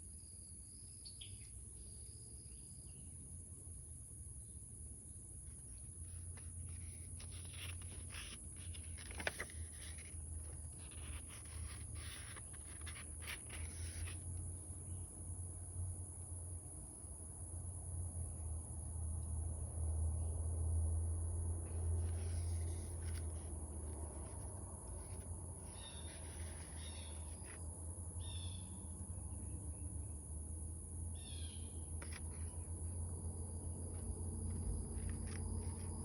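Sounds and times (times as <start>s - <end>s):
paper pages rustling: 6.0s - 14.2s, 22.0s - 27.6s, 32.0s - 32.5s, 34.5s - 36.0s.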